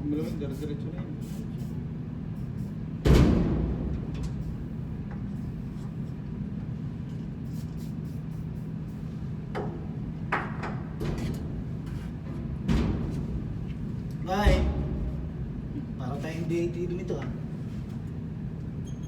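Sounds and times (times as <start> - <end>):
low machinery hum: 0.0 - 19.0
loud metallic bang: 3.1 - 4.7.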